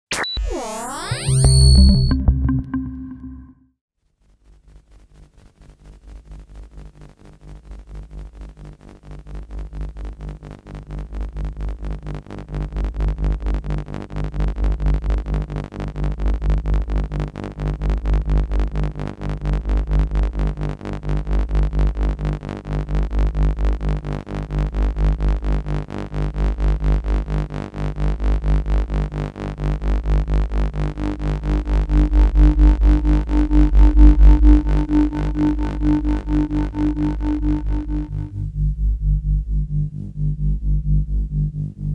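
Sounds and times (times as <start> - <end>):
higher synthesizer tone: 0.1 - 3.7, 31.7 - 38.6
pulsing synthesizer bass drone: 0.4 - 3.6, 23.1 - 41.9.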